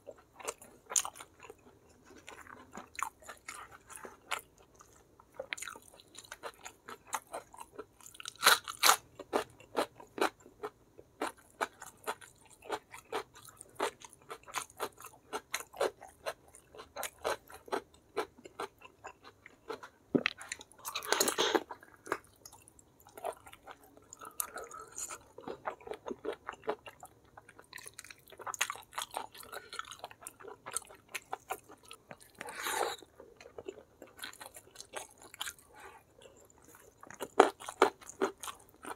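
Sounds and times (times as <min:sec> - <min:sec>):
person chewing and crunching: 0:00.0 - 0:38.9.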